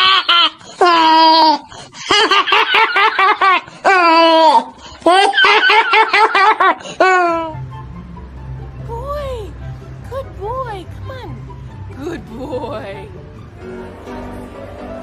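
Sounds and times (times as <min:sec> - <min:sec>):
high-pitched laughter: 0:00.0 - 0:07.5.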